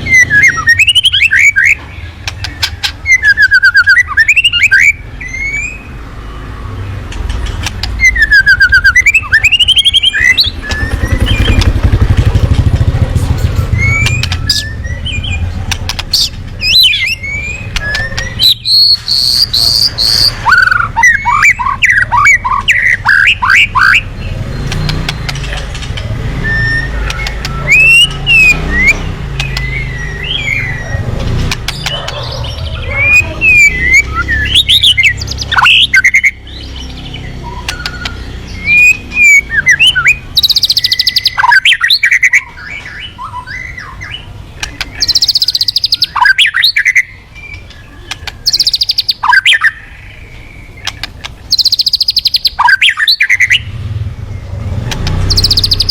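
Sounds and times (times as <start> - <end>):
bird singing whistled phrases: 0.0 - 1.8, 3.0 - 6.0, 8.0 - 11.8, 16.2 - 24.9, 26.4 - 31.0, 32.7 - 36.7, 37.3 - 49.9, 50.5 - 53.7
harsh buzzy bird rattles: 9.7 - 14.7.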